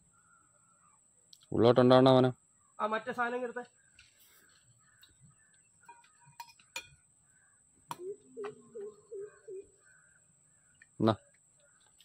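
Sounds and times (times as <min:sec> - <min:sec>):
bird calling low notes: 0:07.2 - 0:12.0.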